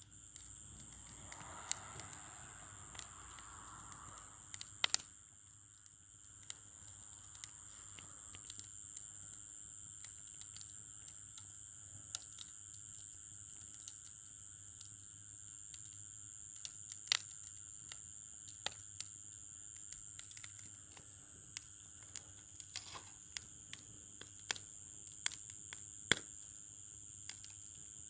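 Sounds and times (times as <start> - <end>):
campfire crackling: 0.0 - 12.7, 19.8 - 26.6.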